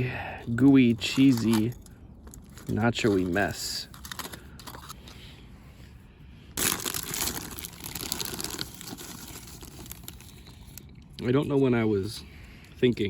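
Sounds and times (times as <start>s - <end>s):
crunching of chips being chewed: 6.6s - 11.2s.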